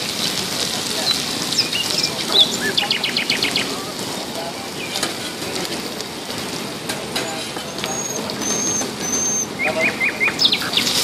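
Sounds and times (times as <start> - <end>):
egg sizzling on a griddle: 0.0 - 9.6, 10.4 - 11.0
high chirps: 7.6 - 11.0.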